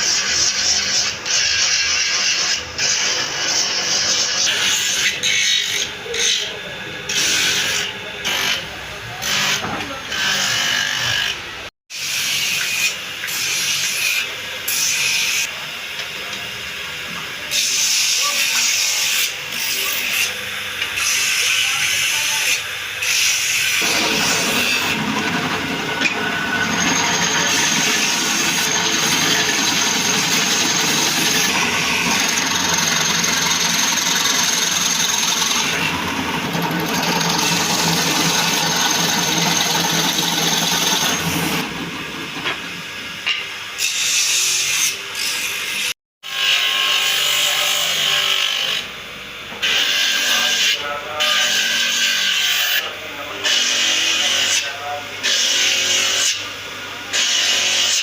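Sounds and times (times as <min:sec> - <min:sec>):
power tool rasping on wood: 0:21.0 - 0:41.6.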